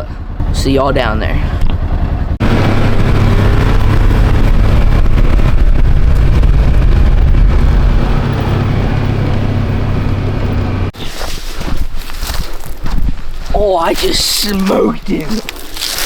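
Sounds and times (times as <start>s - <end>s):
utility vehicle engine droning: 0.0s - 11.0s
wind and road noise: 0.0s - 16.0s.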